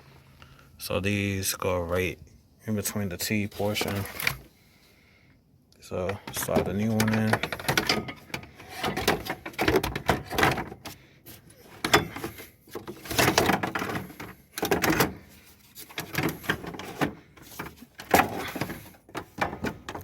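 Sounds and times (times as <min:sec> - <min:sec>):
plastic shroud scraping and knocking: 0:06.0 - 0:20.0.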